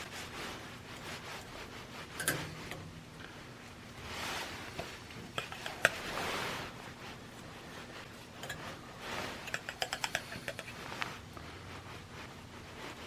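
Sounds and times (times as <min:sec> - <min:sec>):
metal parts clicking and tapping: 0:02.2 - 0:02.8, 0:09.5 - 0:10.7.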